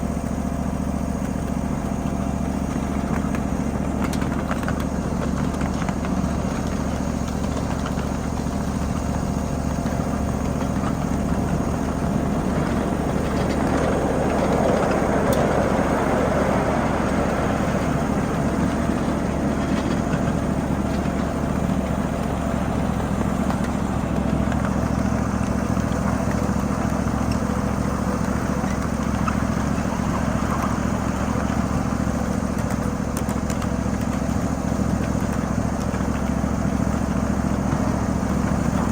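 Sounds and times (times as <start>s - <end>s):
miniature train engine drone: 0.0s - 38.9s
rail and wheel noise: 1.5s - 38.9s.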